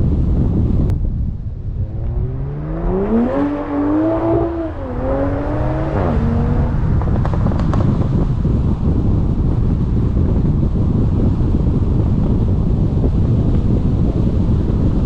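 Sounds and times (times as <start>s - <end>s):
car engine revving: 1.5s - 8.1s
exhaust pops: 5.8s - 8.6s.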